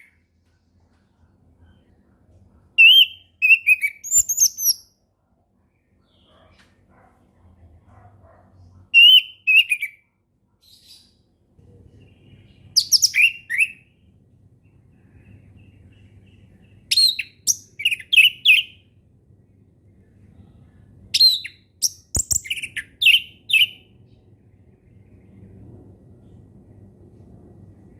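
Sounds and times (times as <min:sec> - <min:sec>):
faint low hum: 0:00.0 - 0:27.9
thrush singing fluty whistles: 0:12.8 - 0:13.8.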